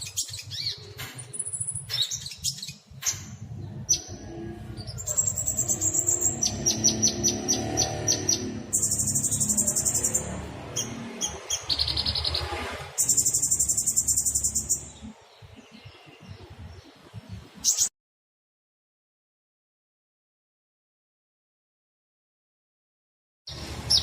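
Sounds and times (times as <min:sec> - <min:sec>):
songbird rattling trills: 0:04.9 - 0:15.0.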